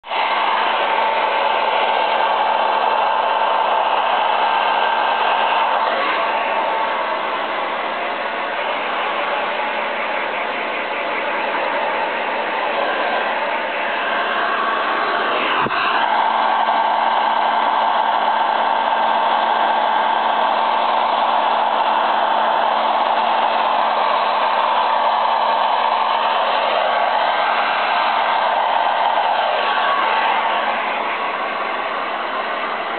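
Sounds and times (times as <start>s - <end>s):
hair dryer blowing: 0.0s - 32.9s.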